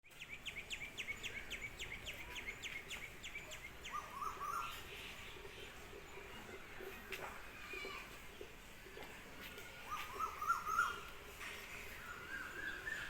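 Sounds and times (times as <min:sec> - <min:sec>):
birds chirping: 0:00.1 - 0:04.8, 0:09.9 - 0:11.1.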